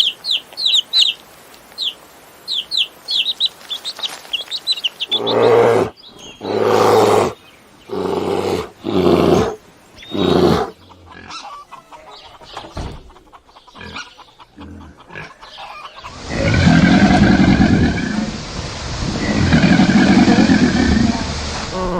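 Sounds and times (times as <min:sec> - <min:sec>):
deep animal calls: 0:05.1 - 0:11.7, 0:13.1 - 0:18.4, 0:19.0 - 0:21.9.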